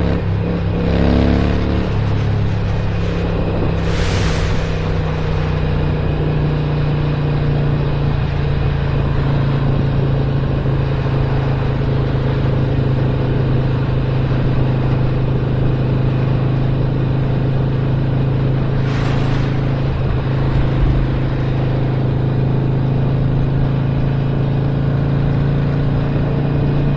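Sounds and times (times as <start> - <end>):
motorcycle engine cruising: 0.0 - 26.9
wind and road noise: 0.0 - 26.9
brief whoosh: 1.9 - 7.1, 18.7 - 22.0.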